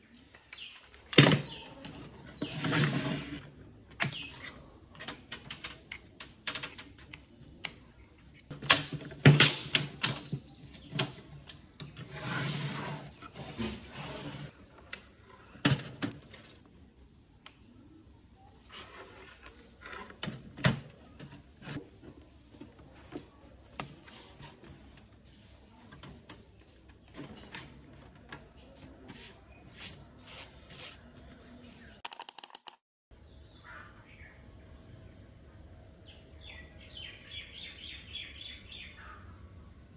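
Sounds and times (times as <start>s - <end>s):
objects rubbing and scraping: 1.9s - 3.5s, 12.0s - 14.6s, 18.6s - 20.4s, 29.1s - 32.2s
objects clicking and knocking: 32.0s - 32.8s.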